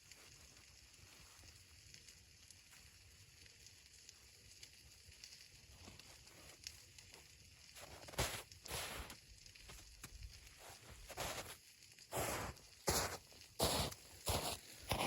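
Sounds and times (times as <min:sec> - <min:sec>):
faint hiss: 0:05.7 - 0:15.0.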